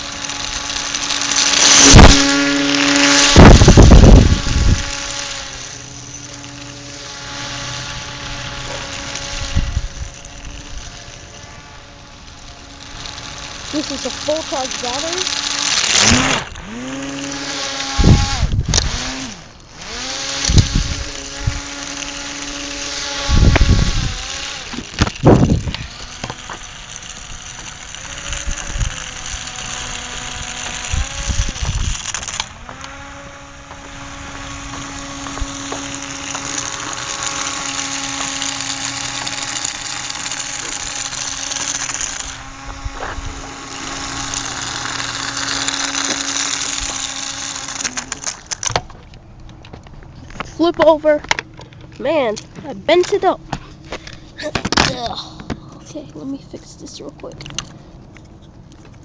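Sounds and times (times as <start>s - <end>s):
electric fan motor whining: 0.0s - 59.0s.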